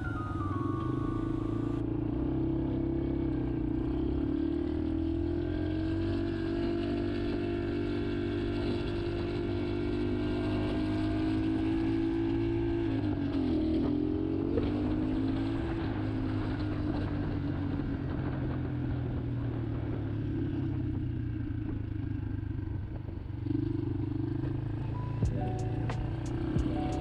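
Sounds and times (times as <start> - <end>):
motorcycle engine running: 0.0 - 27.0
road and wind noise: 0.0 - 27.0.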